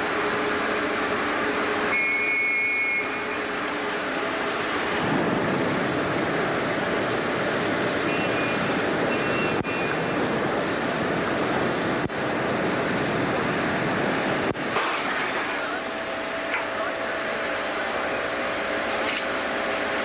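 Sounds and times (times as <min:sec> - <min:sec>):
wind and sea rushing: 0:04.4 - 0:15.1.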